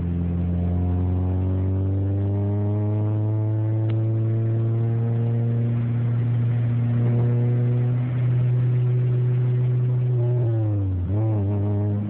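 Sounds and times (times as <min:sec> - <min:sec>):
car engine cruising: 0:00.0 - 0:12.0.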